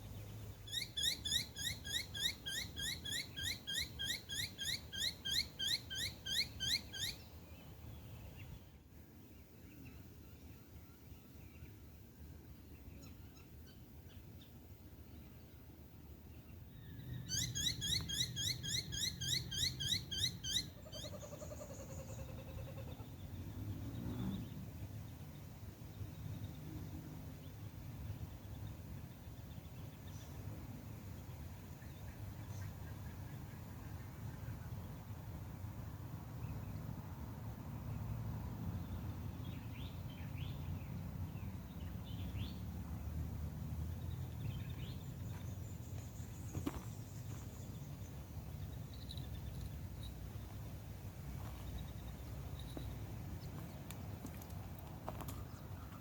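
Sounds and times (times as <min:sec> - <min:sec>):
rising bird chirps: 0:16.8 - 0:23.0.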